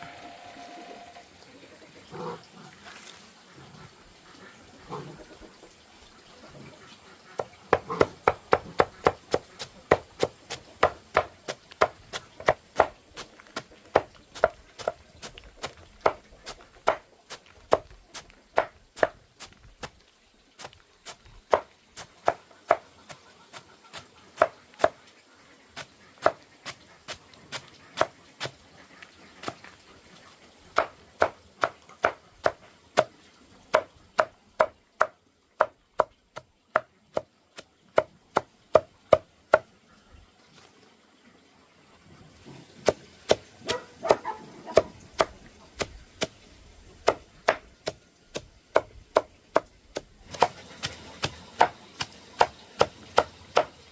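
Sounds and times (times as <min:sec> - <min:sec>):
knife chopping on cutting board: 0:47.0 - 0:48.0.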